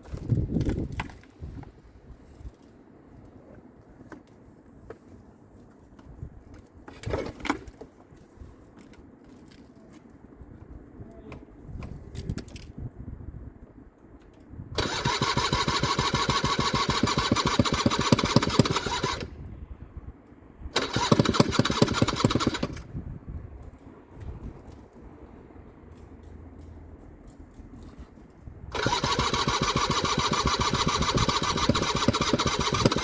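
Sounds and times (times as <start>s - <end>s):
scooter engine starting: 14.8s - 19.4s, 20.8s - 22.9s, 28.7s - 33.0s.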